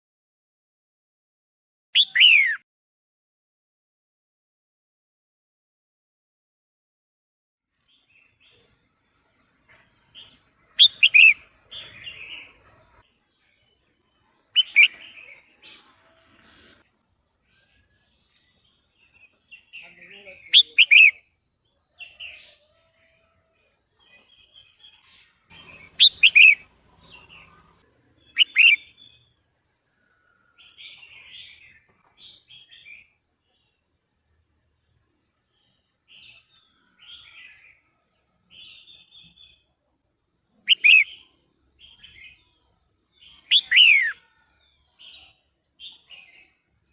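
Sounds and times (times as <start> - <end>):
bulbul calling: 2.0 - 2.6, 10.8 - 12.5, 14.6 - 15.8, 19.8 - 21.2, 25.5 - 29.2, 40.6 - 41.3, 43.3 - 44.2
sharp bird chirping: 2.0 - 2.6, 10.7 - 13.0, 14.5 - 16.8, 19.0 - 21.3, 25.0 - 29.3, 40.6 - 42.5, 43.2 - 44.3
harsh bird chattering: 10.8 - 11.4, 14.6 - 15.1, 20.5 - 21.2, 25.5 - 26.6, 28.3 - 28.9, 40.7 - 41.2.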